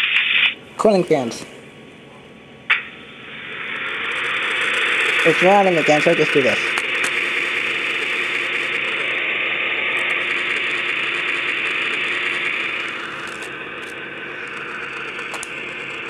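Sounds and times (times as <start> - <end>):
model locomotive engine sound: 3.2 - 16.0.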